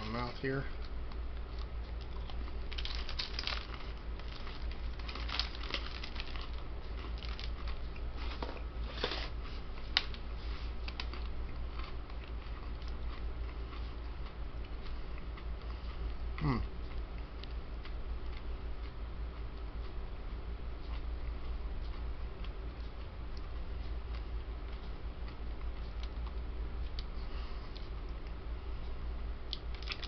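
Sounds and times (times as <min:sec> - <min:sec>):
steady low hum: 0:00.0 - 0:30.0
chewing cookie with popping candy: 0:00.8 - 0:08.1, 0:29.5 - 0:30.0
plastic package crinkling: 0:02.7 - 0:07.7, 0:29.7 - 0:30.0.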